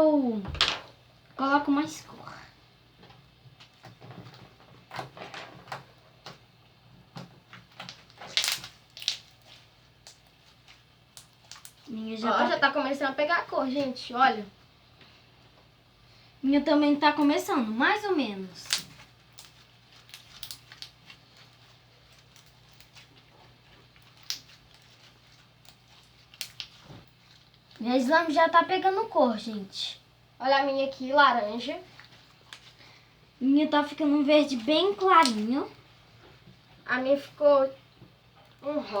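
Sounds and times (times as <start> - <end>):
slime squelching by hand: 7.6 - 12.2, 17.8 - 28.2, 31.4 - 33.0.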